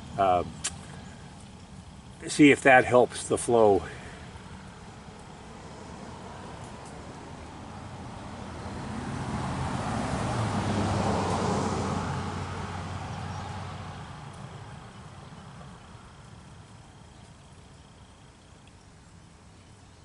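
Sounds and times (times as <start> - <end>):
vehicle driving past: 4.0 - 18.2.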